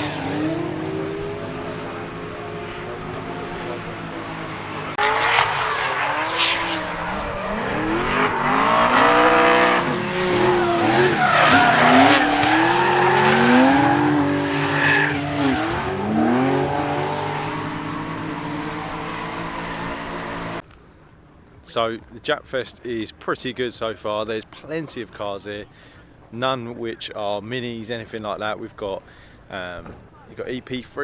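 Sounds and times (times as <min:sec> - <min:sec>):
tyres squealing: 0:00.0 - 0:20.6
car engines revving: 0:00.0 - 0:20.8.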